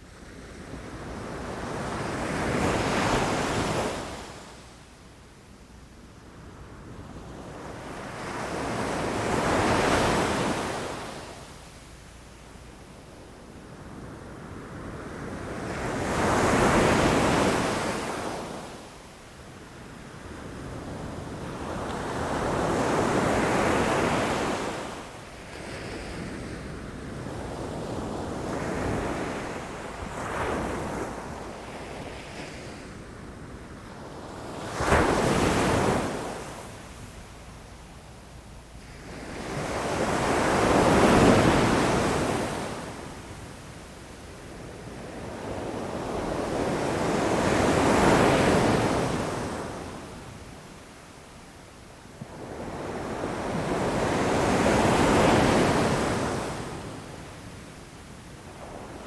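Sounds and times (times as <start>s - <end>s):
ocean waves crashing against rocks: 34.6s - 36.7s.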